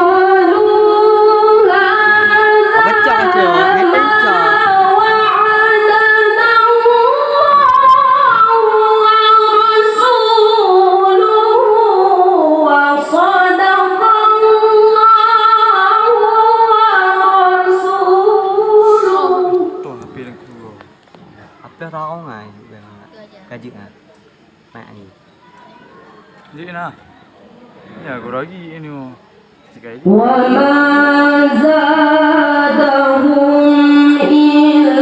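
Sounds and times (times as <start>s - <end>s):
child reciting melodically: 2.2s - 5.1s.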